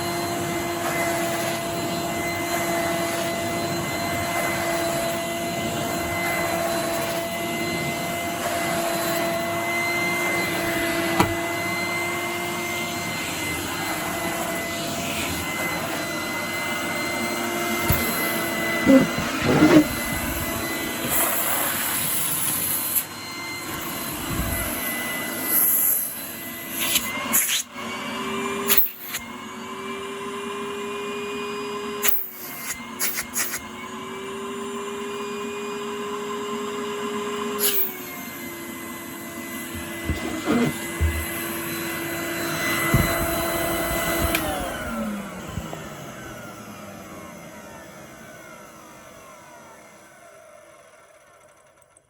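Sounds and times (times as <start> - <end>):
vacuum cleaner motor whine: 0.0 - 52.0
knocks: 11.2 - 11.4, 42.9 - 43.4.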